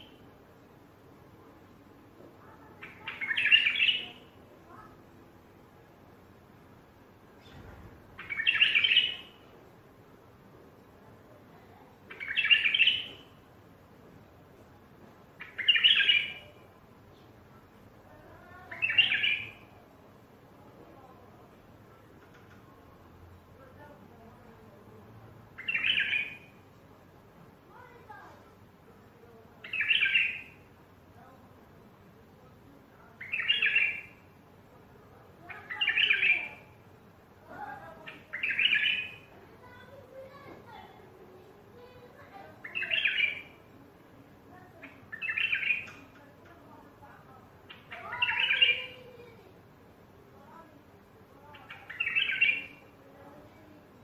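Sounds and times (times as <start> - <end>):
bird singing warbled phrases: 2.4 - 5.0, 7.4 - 9.6, 11.8 - 13.5, 15.4 - 17.4, 18.0 - 19.8, 25.4 - 26.7, 29.6 - 30.8, 33.0 - 34.4, 35.3 - 43.8, 44.6 - 49.5, 50.9 - 54.0.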